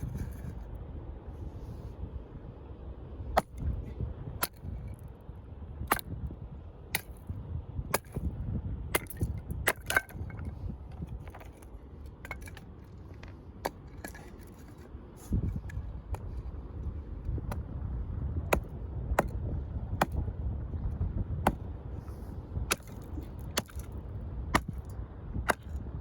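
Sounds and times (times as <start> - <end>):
low rumble: 0.0 - 26.0
firewood cracking and knocking: 9.0 - 14.8, 22.7 - 24.0.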